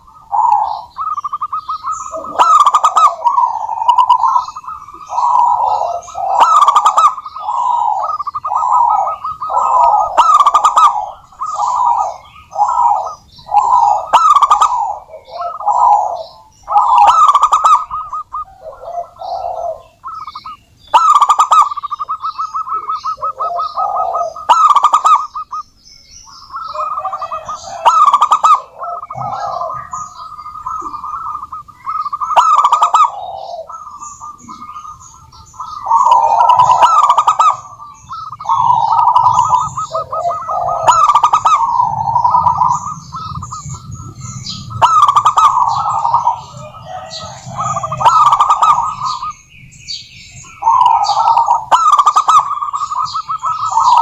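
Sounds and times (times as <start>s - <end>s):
doves cooing: 0.0s - 54.0s.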